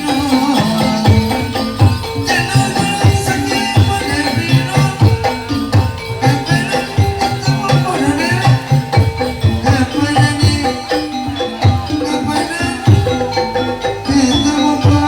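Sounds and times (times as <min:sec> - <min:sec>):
bending melody line: 0:00.0 - 0:15.0
ringing pitched percussion: 0:00.0 - 0:15.0.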